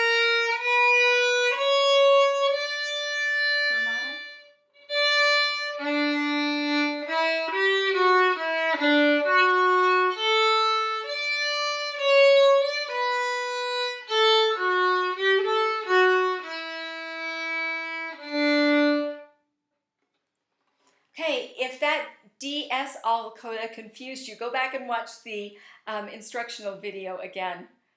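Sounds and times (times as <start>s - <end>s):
violin bowed notes: 0.0s - 19.4s.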